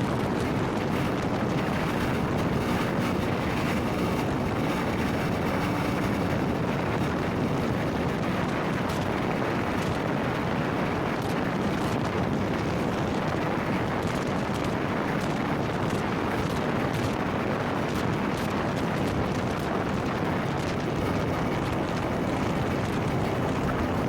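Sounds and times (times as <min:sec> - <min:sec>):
motorcycle engine running: 0:00.0 - 0:13.8, 0:20.4 - 0:24.0
wind rushing over microphone: 0:00.0 - 0:24.0.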